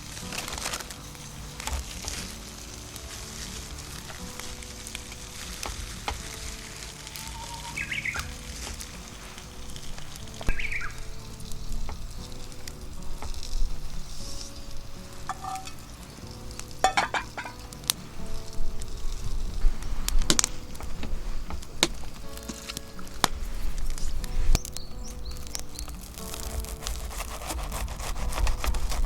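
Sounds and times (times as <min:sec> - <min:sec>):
meat sizzling in a skillet: 0:00.0 - 0:28.0.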